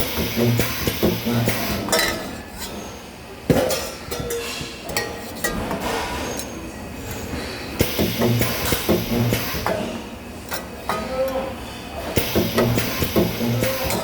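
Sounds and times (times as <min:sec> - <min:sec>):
spot welder buzzing: 0:00.0 - 0:01.9, 0:07.8 - 0:09.8, 0:12.2 - 0:14.0.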